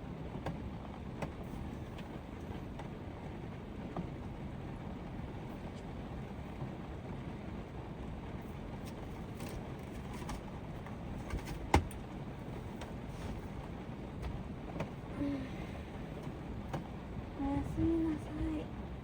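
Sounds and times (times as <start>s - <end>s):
heavy rain drumming on a van roof: 0.0s - 19.0s.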